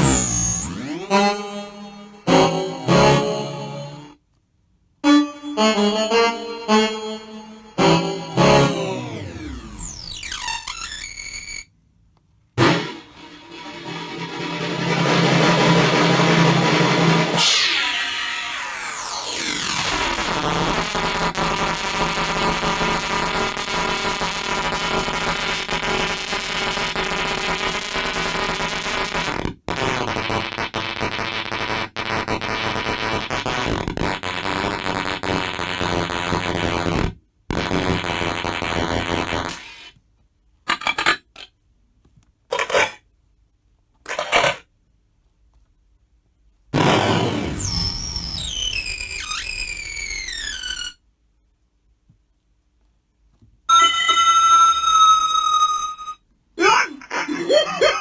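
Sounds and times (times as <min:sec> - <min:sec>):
stuttering noise bursts: 0:00.0 - 0:03.9, 0:07.3 - 0:11.6, 0:12.6 - 0:39.9, 0:46.8 - 0:51.0
buzzing glitchy electronic noise: 0:00.0 - 0:04.2, 0:05.0 - 0:11.7, 0:16.5 - 0:40.0, 0:46.8 - 0:51.0.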